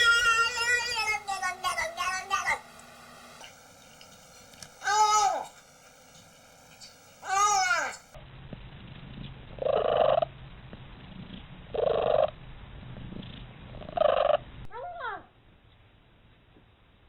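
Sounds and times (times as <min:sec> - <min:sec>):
cat purring: 0:09.1 - 0:10.4, 0:11.0 - 0:12.4, 0:13.0 - 0:14.5.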